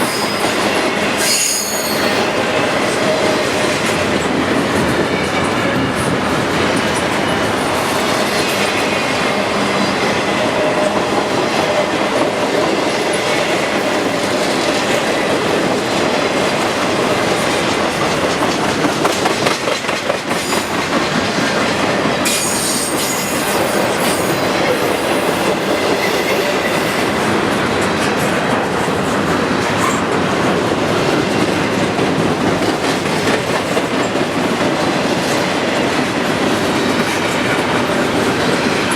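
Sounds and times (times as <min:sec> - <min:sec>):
high wheel squeal: 0:00.0 - 0:00.6, 0:01.2 - 0:02.3, 0:22.3 - 0:24.9
freight train wheels rumbling: 0:00.0 - 0:38.9.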